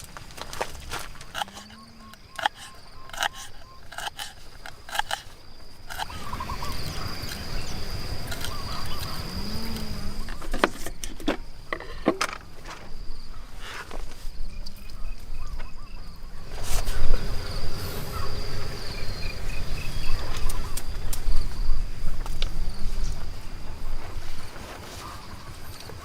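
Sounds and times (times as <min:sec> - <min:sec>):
insect chirps: 0:00.0 - 0:26.0
insects droning: 0:00.0 - 0:26.0.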